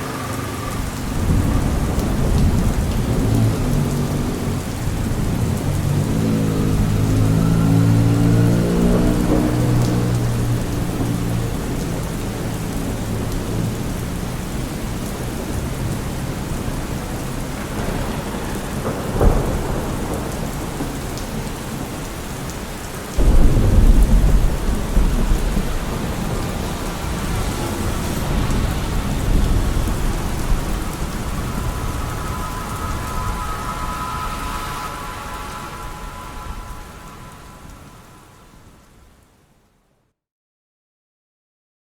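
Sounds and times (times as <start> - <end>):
passing vehicle hum: 0.0 - 19.0, 25.7 - 39.2
low thunder rumble: 0.0 - 39.0
heavy rain falling: 0.0 - 39.5.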